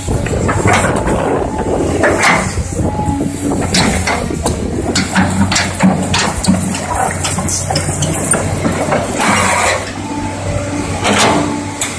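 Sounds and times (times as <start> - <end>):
heavy diesel engine running: 0.0 - 11.9
clanks and knocks: 3.6 - 9.9.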